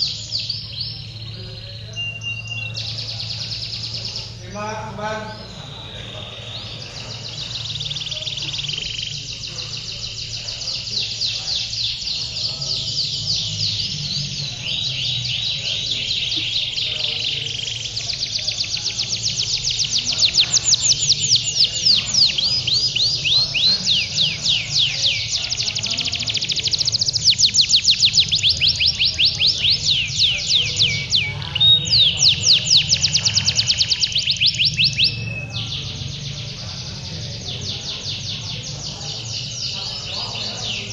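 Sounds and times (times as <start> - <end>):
canaries trilling: 0.0 - 40.9.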